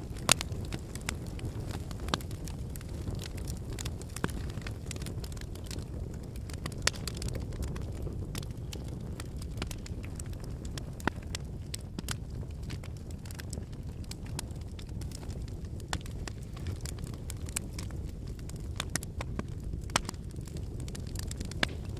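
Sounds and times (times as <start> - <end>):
logs crackling and popping: 0.0 - 21.9
low rush of flame: 0.0 - 21.9.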